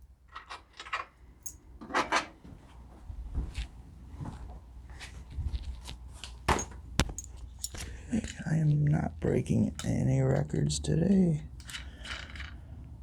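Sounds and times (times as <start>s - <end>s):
metal hardware clinking: 6.5s - 8.4s.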